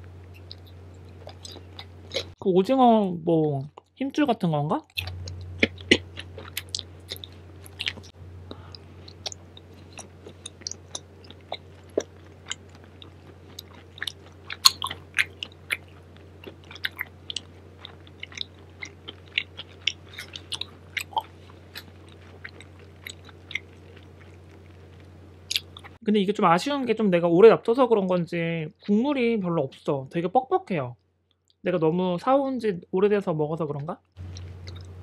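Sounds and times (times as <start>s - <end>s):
person chewing food: 0.0s - 2.4s, 5.0s - 26.0s, 34.2s - 35.0s
low steady hum: 0.0s - 35.0s.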